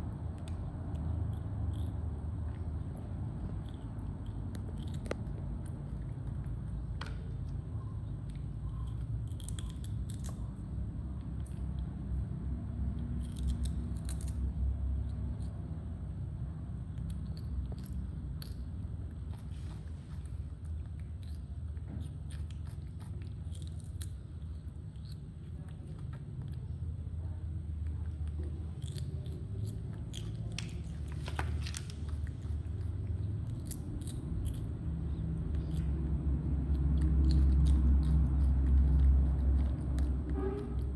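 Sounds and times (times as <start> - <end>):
steady low rumble: 0.0 - 40.9
monkeys chewing crunchy vegetables: 0.2 - 15.7, 16.9 - 40.9.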